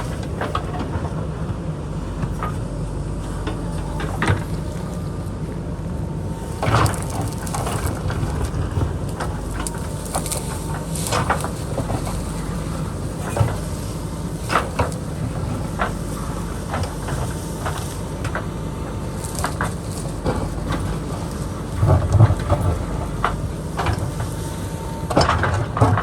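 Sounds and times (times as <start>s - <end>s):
diesel engine running: 0.0s - 26.0s
bucket scraping rock and dirt: 6.2s - 24.2s.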